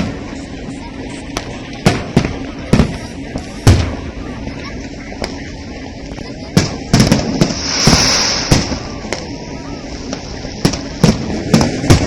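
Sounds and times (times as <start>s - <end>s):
fireworks crackling hiss: 4.8s - 12.0s
fireworks bangs: 6.6s - 12.0s.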